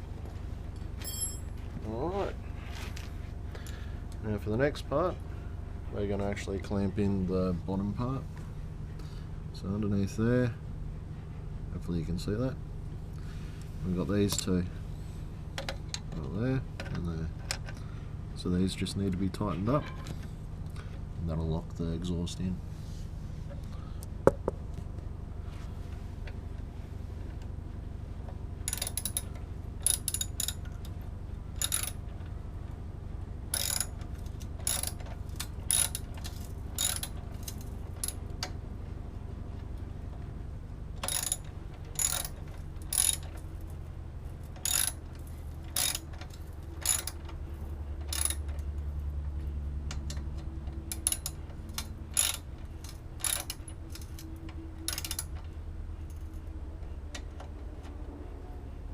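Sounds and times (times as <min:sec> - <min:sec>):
steady low hum: 0:00.0 - 0:58.9
ratchet wrench clicking: 0:28.7 - 0:30.7, 0:31.6 - 0:32.0, 0:33.5 - 0:38.2, 0:41.0 - 0:43.4, 0:44.5 - 0:47.3, 0:48.0 - 0:48.7, 0:50.9 - 0:54.3, 0:54.9 - 0:55.3.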